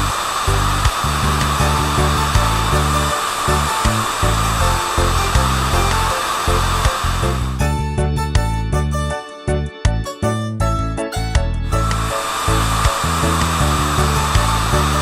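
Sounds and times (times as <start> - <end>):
steady whirring noise: 0.0 - 7.9, 11.8 - 15.0
cartoon music with bass line: 0.0 - 15.0.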